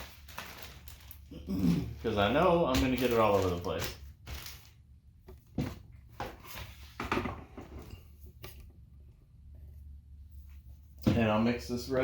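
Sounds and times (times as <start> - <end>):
plastic sheet rustling: 0.0 - 5.0
handling noises: 2.0 - 8.7.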